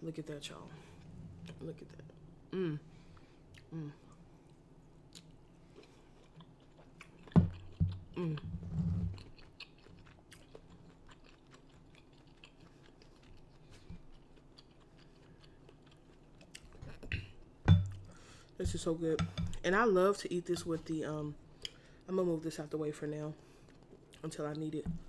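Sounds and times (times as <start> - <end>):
chewing: 4.4 - 8.5, 9.1 - 18.1.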